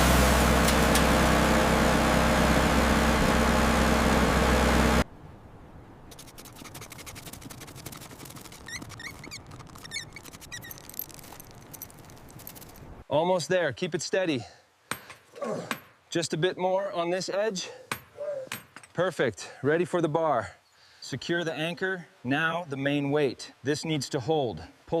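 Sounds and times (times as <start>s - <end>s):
small generator engine running: 0.0s - 5.0s.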